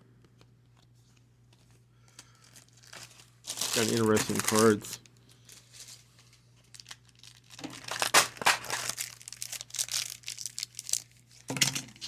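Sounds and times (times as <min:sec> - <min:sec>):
cards being handled: 0:00.2 - 0:06.7, 0:07.8 - 0:10.1
card pack wrappers crinkling: 0:02.0 - 0:12.0.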